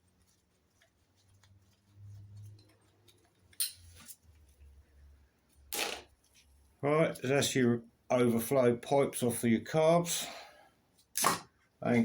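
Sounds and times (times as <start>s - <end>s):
scraping rustle: 0.0s - 4.8s.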